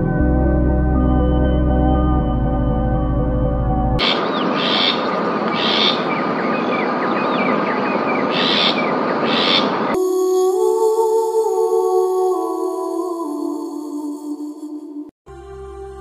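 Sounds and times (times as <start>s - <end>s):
soft ambient music: 0.0s - 4.0s, 10.0s - 16.0s
birds chirping: 4.0s - 10.0s
bright repeated bird calls: 4.0s - 10.0s.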